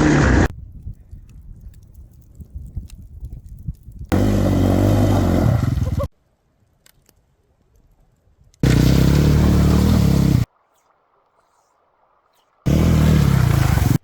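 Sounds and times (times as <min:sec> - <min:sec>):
dirt bike engine revving: 0:00.0 - 0:00.5, 0:04.1 - 0:06.1, 0:08.6 - 0:10.5, 0:12.7 - 0:14.0.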